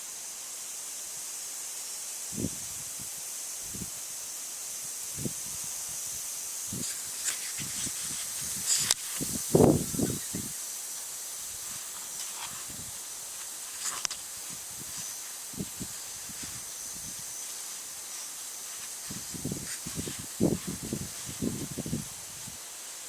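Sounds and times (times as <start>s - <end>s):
wheat stalks rustling in wind: 2.0s - 23.0s
wind buffeting microphone: 7.6s - 10.6s, 14.4s - 17.3s, 19.0s - 22.6s.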